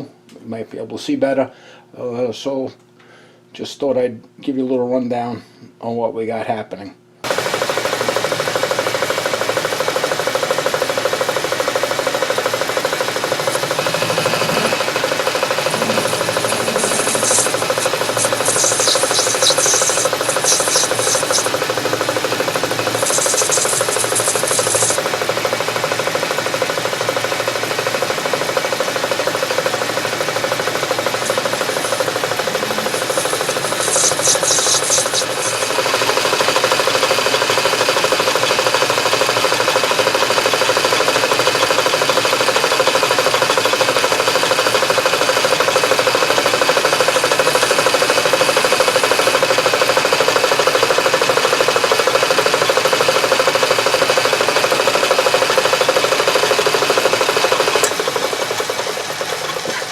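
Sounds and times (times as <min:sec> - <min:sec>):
metal lathe humming and whining: 0:11.2 - 0:26.5, 0:29.5 - 0:38.4, 0:45.4 - 0:59.8
tool scraping brass: 0:13.3 - 0:25.0, 0:31.0 - 0:35.9.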